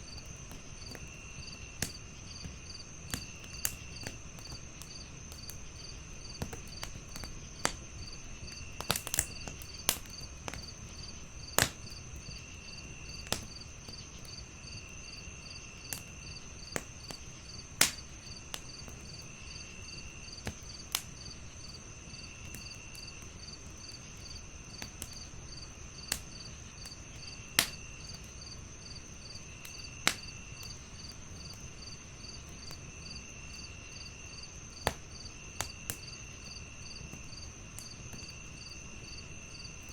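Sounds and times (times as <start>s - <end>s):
crickets chirping: 0.0s - 39.9s
fire popping and snapping: 0.0s - 39.9s
wood fire crackling: 0.0s - 39.9s.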